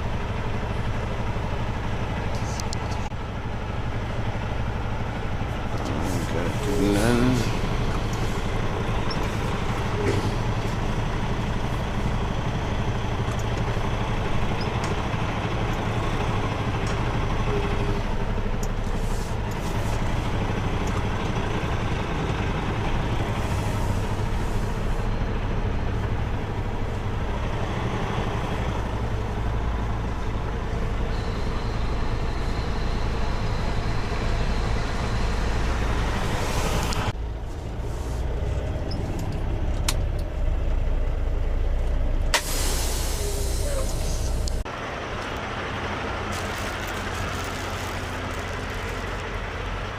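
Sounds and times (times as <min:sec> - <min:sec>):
diesel truck engine droning: 0:00.0 - 0:49.9
air hiss: 0:42.4 - 0:44.4.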